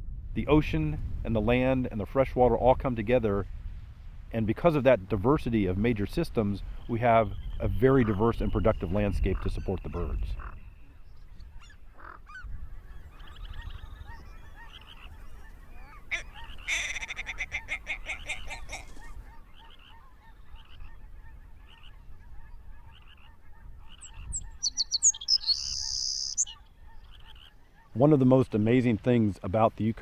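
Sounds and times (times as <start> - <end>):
geese honking: 11.4 - 28.6.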